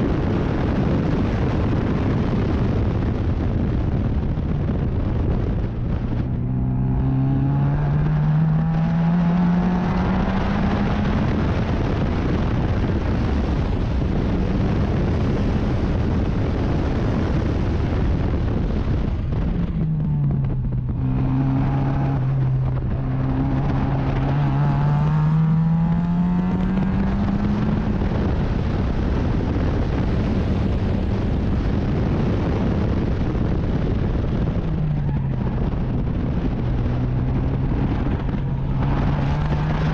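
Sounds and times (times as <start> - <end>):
steady rushing noise: 0.0 - 39.9
racing car engine revving: 6.0 - 12.4, 19.3 - 33.0, 35.0 - 39.9.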